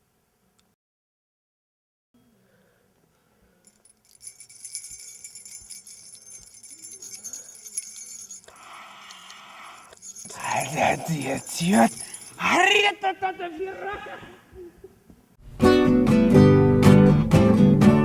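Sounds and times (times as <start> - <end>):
metallic jingling: 3.6 - 13.2.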